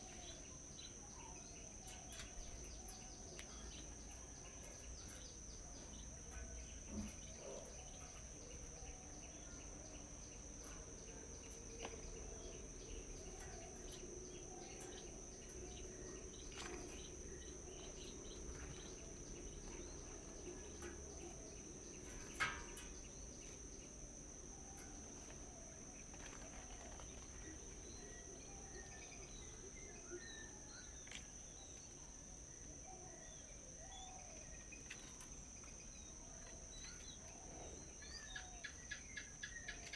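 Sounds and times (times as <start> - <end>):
birds chirping: 0.0 - 39.9
insects droning: 0.0 - 39.9.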